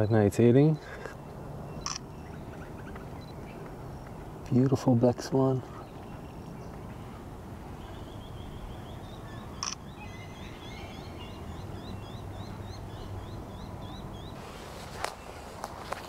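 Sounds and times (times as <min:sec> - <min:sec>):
small bird calling: 0:00.0 - 0:04.4, 0:05.5 - 0:16.0
outdoor background noise: 0:00.0 - 0:16.0.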